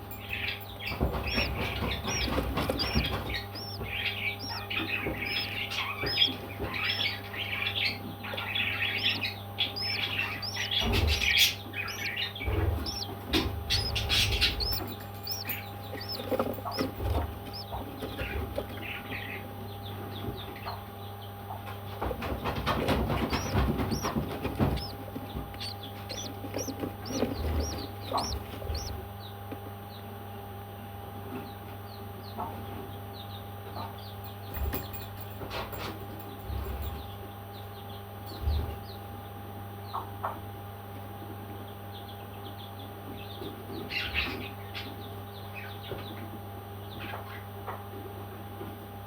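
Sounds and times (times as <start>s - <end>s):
steady low hum: 0.0s - 33.2s
parrots chirping: 0.9s - 18.9s, 22.9s - 29.0s.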